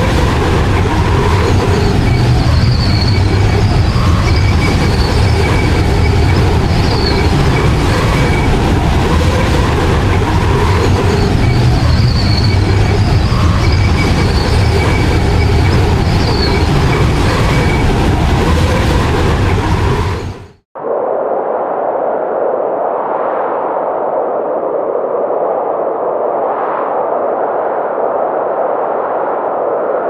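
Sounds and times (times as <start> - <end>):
blizzard wind roaring: 0.0 - 30.0
faint wavering whistles: 1.1 - 8.6, 10.5 - 18.0.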